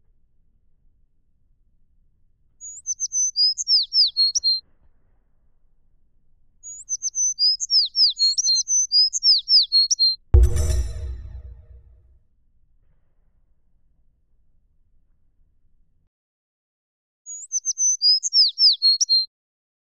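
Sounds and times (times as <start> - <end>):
songbird whistling: 2.8 - 4.6, 6.7 - 10.1, 17.3 - 19.3.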